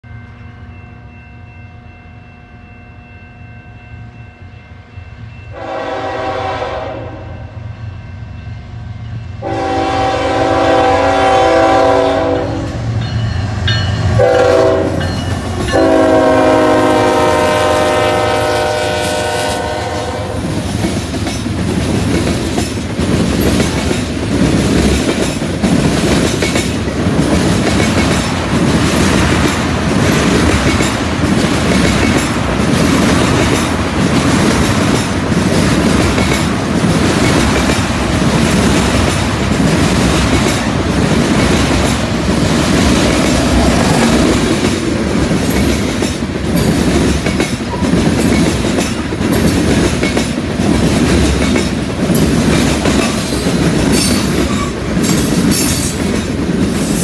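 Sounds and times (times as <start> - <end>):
diesel locomotive engines droning: 0.0 - 57.0
train horn blowing: 5.5 - 7.7, 9.4 - 12.9, 14.1 - 20.6.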